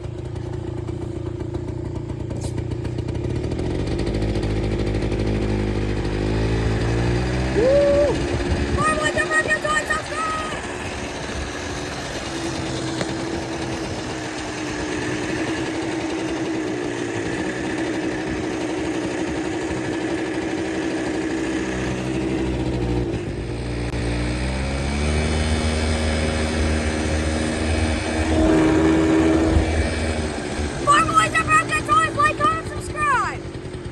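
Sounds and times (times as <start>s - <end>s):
quad engine running: 0.0s - 33.9s.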